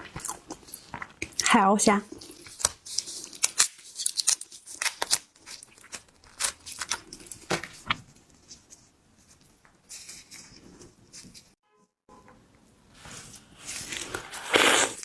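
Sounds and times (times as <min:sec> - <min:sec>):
shell cracking and snapping: 0:02.1 - 0:07.3.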